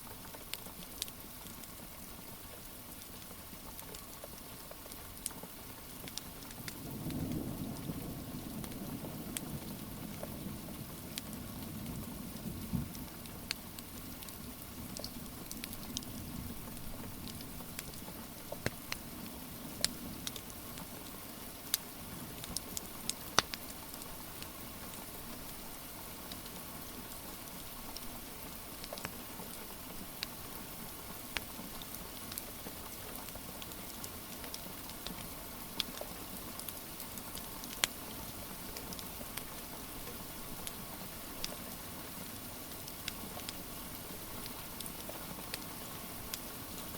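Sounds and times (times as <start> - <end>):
steady rain patter: 0.0 - 46.9
wood fire crackling and popping: 6.0 - 7.2, 11.0 - 11.3, 12.8 - 19.1, 19.7 - 26.6, 27.7 - 40.8, 42.3 - 46.9.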